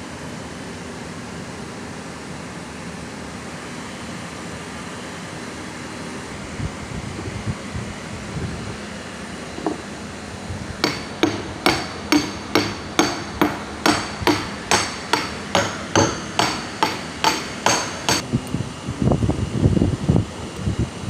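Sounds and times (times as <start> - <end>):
hammer striking metal: 10.8 - 18.2.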